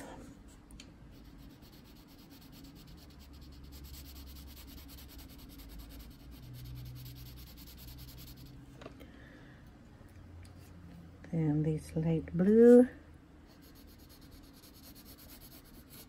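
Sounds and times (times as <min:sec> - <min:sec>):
pencil shading on paper: 0:01.1 - 0:08.5, 0:13.5 - 0:16.0.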